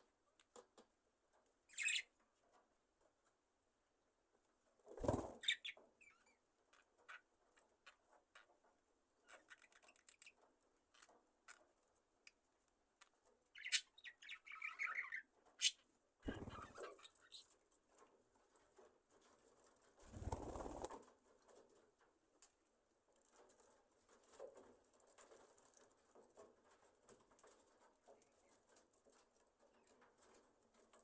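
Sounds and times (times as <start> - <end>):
small clicks and rustles: 0.0 - 3.5, 5.8 - 13.6, 15.4 - 31.0
budgerigars chirping: 1.7 - 2.1
warbling bird chatter: 5.0 - 6.3, 13.6 - 17.5, 20.1 - 21.0
wing rustle: 20.0 - 21.1.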